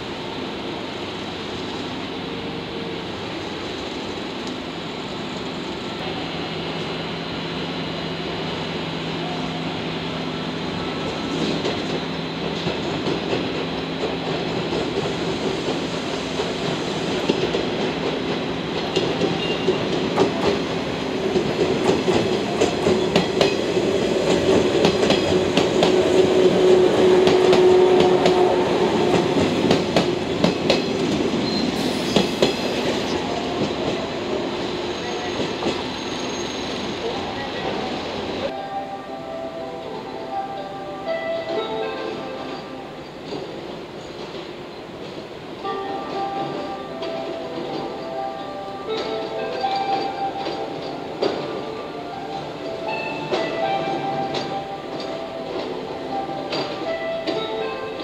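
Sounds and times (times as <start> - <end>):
electric train passing: 0.0 - 58.0
wheels clacking over rail joints: 11.4 - 34.1.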